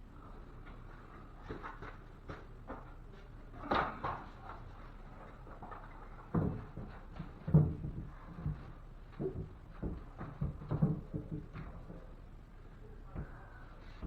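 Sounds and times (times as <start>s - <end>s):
wooden board knocking and bumping: 5.7s - 12.2s.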